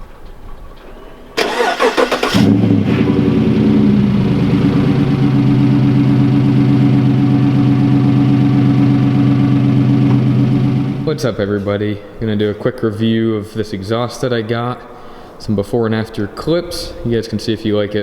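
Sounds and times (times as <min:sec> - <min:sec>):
starter motor cranking: 0:01.4 - 0:11.1
car engine idling loudly: 0:01.4 - 0:11.2.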